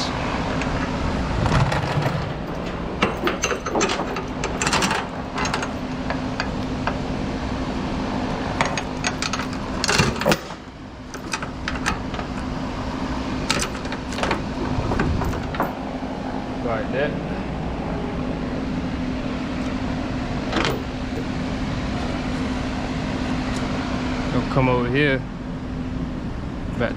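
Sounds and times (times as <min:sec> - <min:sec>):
low engine hum: 0:00.0 - 0:26.8
steel chain clinking and rattling: 0:01.4 - 0:07.1, 0:08.3 - 0:16.0, 0:20.5 - 0:21.3.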